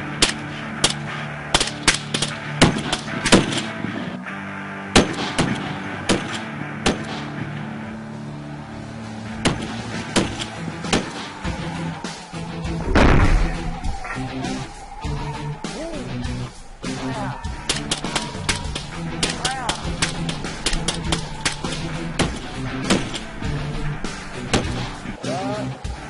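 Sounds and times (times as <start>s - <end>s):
low droning background music: 0.0s - 26.0s
gunshots: 0.1s - 4.0s, 4.9s - 7.5s, 9.4s - 11.6s, 12.8s - 14.0s, 16.4s - 25.2s.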